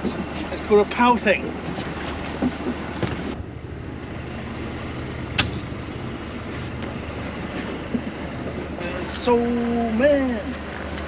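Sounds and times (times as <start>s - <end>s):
boat engine humming: 0.0s - 11.0s
sharp knock: 5.4s - 5.8s.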